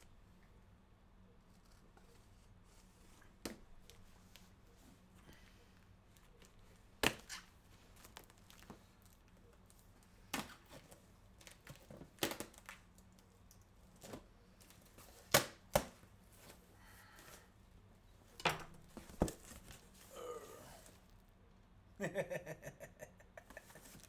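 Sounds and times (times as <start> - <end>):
cardboard rustling: 18.2 - 20.1, 23.4 - 24.0
cardboard box clicks and knocks: 18.8 - 19.9.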